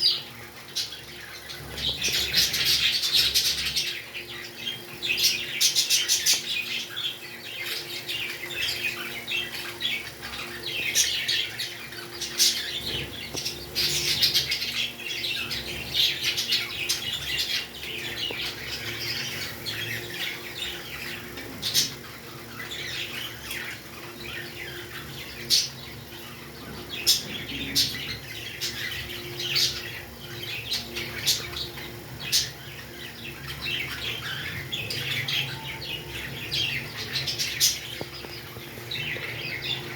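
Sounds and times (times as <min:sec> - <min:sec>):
faint steady hum: 0:00.0 - 0:39.9
parrots chirping and squawking: 0:00.0 - 0:39.9.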